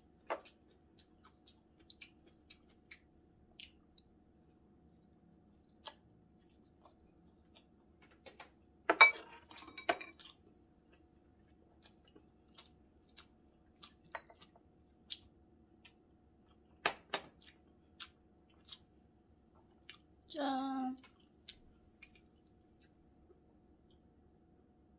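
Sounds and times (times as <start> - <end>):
person chewing noodles: 0.0 - 8.0, 10.1 - 20.2, 21.0 - 24.0
tableware clattering: 8.9 - 10.2.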